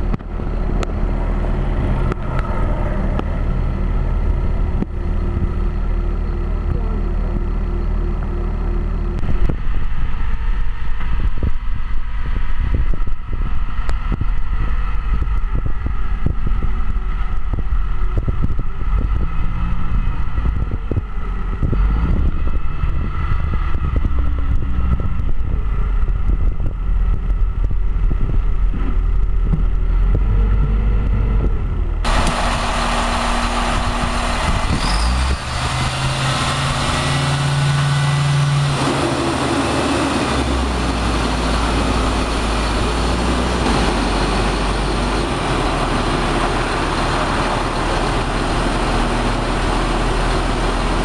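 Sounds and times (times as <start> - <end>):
large engine rumbling: 0.0 - 51.0.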